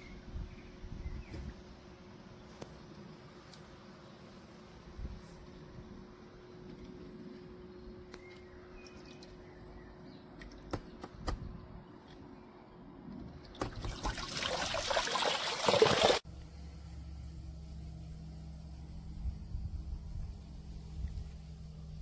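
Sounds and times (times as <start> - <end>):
water pouring and splashing: 13.5 - 16.2.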